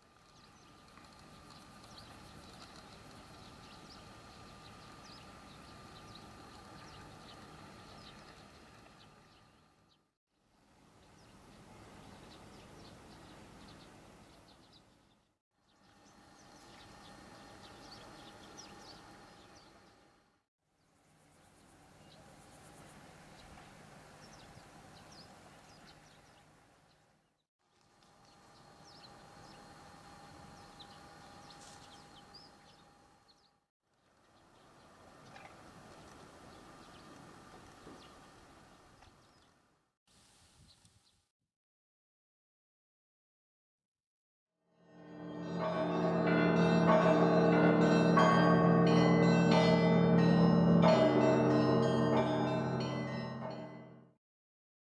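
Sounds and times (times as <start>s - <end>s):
faint birds chirping: 10.9s - 20.2s
bell-like chiming notes: 44.8s - 54.1s
held low tones: 44.9s - 54.1s
low hum: 44.9s - 54.1s.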